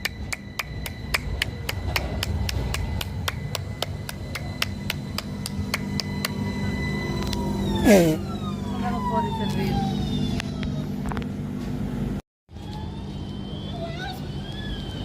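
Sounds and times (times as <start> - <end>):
faint steady high tone: 0.0 - 9.7.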